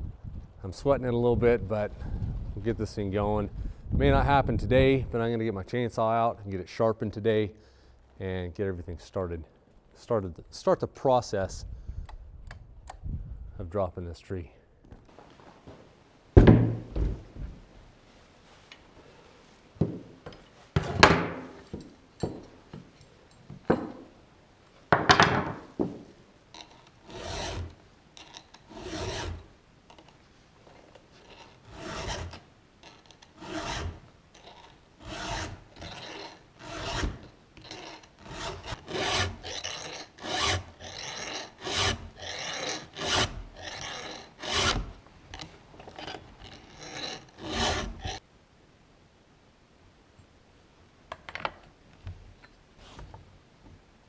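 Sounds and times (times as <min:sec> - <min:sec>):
file rasping on chainsaw chain: 0:26.6 - 0:29.4, 0:31.2 - 0:48.2.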